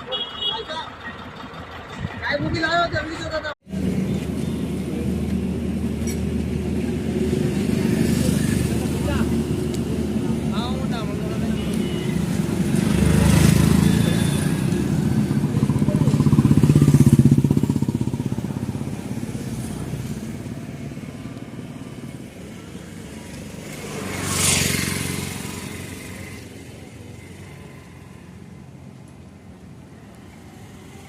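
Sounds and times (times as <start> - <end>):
vehicle engine running: 0.1 - 2.6
vehicle passing: 3.7 - 28.9.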